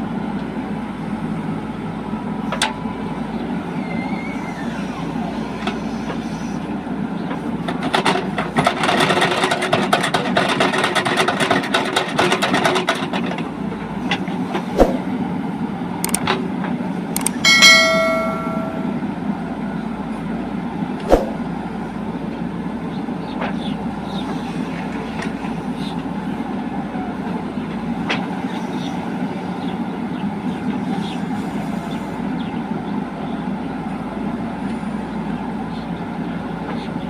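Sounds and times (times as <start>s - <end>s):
diesel machinery engine running: 0.0s - 37.0s
ringing metallic clang: 17.4s - 19.2s.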